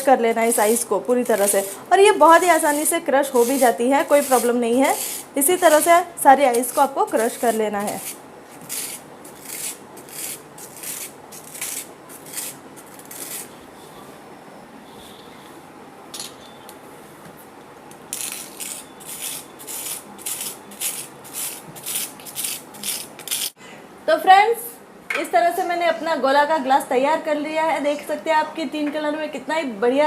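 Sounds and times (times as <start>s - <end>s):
spoon scraping frozen ice: 0.4s - 13.5s, 18.1s - 23.6s.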